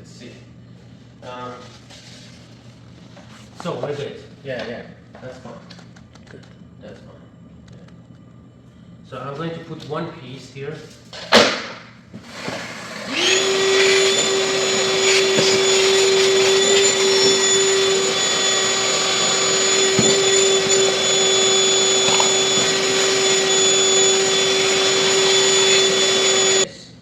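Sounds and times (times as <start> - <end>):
small electric motor running: 13.0 - 26.7.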